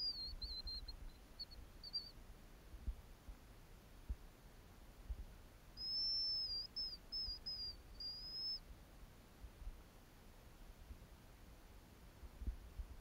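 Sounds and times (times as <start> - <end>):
songbird whistling: 0.0 - 2.1, 5.8 - 8.6
faint low bumps: 12.2 - 13.0.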